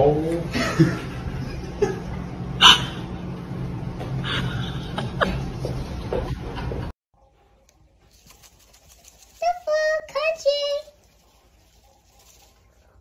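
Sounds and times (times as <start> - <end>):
steady background hum: 0.0 - 9.9.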